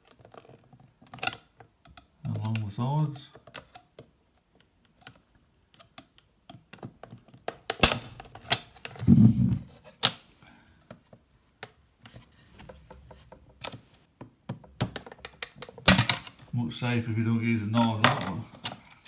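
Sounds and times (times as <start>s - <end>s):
plastic clicks and knocks: 12.6s - 16.4s.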